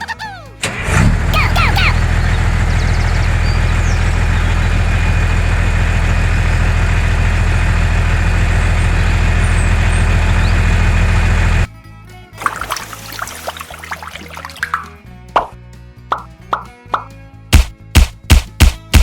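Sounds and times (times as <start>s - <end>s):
tractor engine idling: 0.6s - 11.7s.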